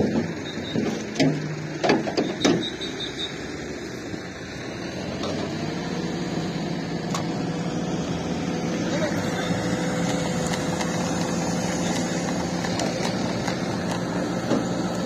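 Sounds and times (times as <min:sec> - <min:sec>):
knocks and clatters: 0:00.0 - 0:02.8, 0:10.0 - 0:15.0
vehicle engine humming: 0:00.0 - 0:15.0.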